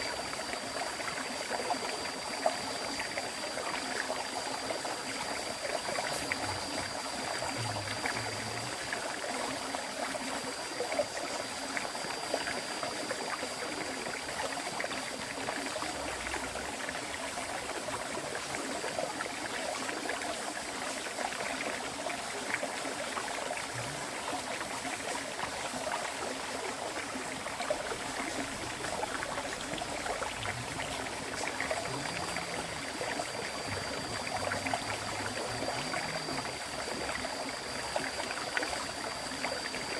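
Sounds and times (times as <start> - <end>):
faint high steady tone: 0.0 - 14.8, 26.7 - 39.9
river water flowing: 0.0 - 39.9.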